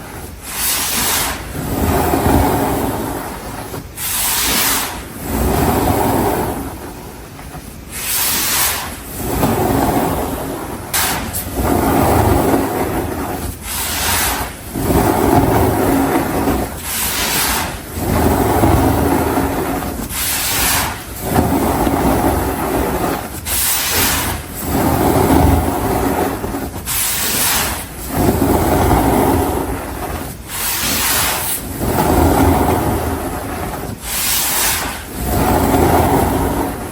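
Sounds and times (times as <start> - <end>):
powder rubbed by hand: 7.9 - 36.9.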